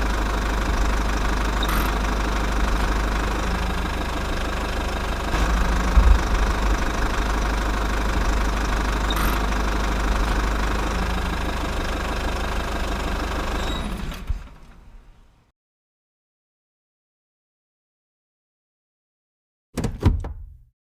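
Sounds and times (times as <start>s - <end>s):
small tractor engine chugging: 0.0s - 14.8s.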